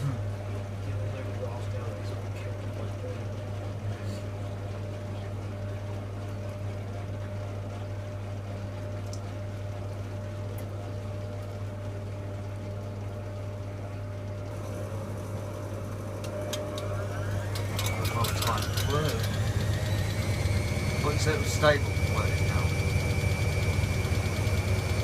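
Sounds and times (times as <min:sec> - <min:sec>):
washing machine pump hum: 0:00.0 - 0:25.0
water running: 0:00.0 - 0:25.0
rising motor whine: 0:14.6 - 0:25.0.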